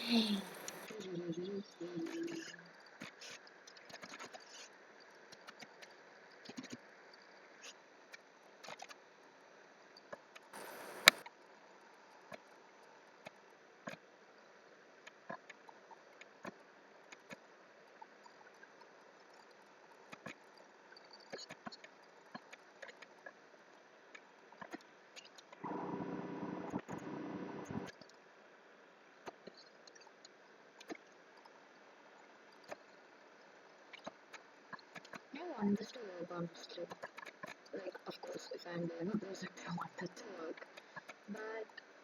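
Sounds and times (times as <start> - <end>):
mouse and keyboard clicks: 10.6 - 11.2.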